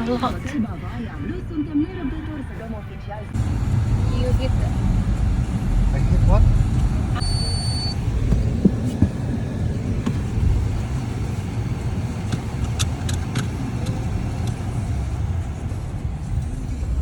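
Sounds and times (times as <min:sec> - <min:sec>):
car driving rumble: 0:00.0 - 0:17.0
short high beep: 0:07.2 - 0:08.0.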